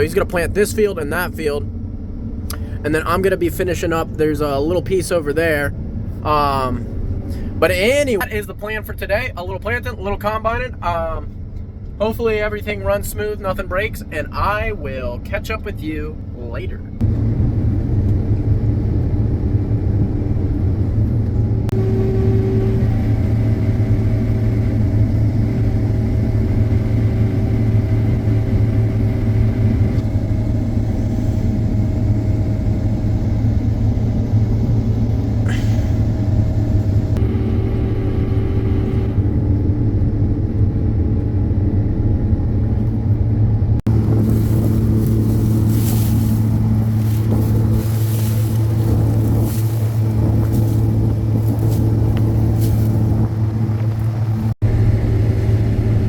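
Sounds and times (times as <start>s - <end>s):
farm machine engine running: 17.0s - 56.0s.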